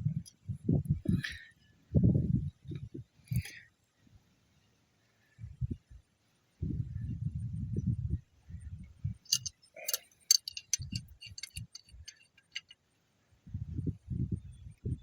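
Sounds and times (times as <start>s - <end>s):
metal tools clinking: 9.3s - 12.8s.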